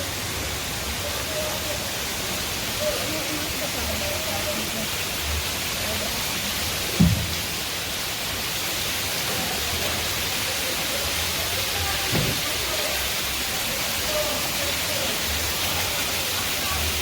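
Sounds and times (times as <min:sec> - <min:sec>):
waterfall and river rushing: 0:00.0 - 0:17.0
dull thump: 0:07.0 - 0:07.4, 0:12.1 - 0:12.4.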